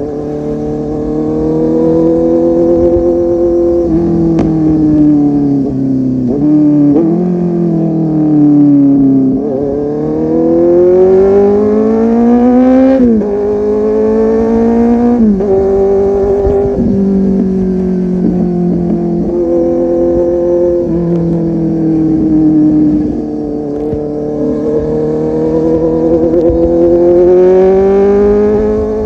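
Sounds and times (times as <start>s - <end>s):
motorcycle engine under way: 0.0s - 29.0s.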